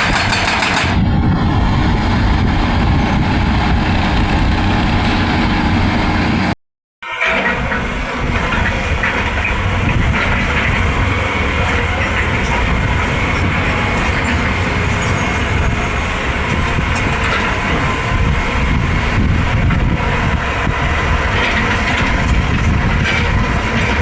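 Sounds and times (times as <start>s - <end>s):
excavator engine and hydraulics: 0.0s - 24.0s.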